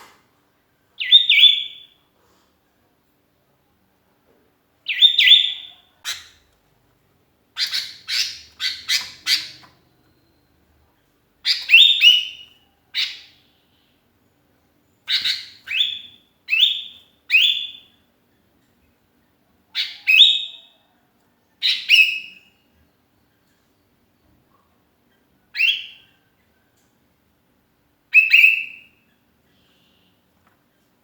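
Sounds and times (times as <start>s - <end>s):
bulbul calling: 7.6s - 9.8s
sharp bird chirps: 7.6s - 10.5s.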